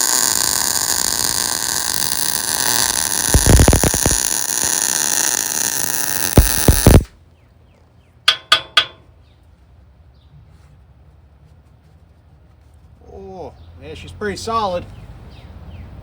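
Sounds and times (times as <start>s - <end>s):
welder arc hissing and crackling: 0.0s - 7.1s.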